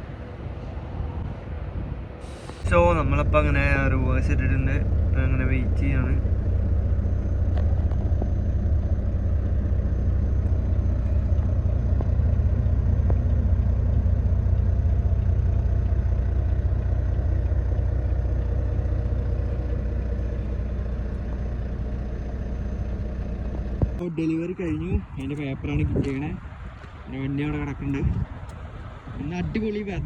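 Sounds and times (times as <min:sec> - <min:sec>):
diesel truck engine idling: 0:00.0 - 0:30.0.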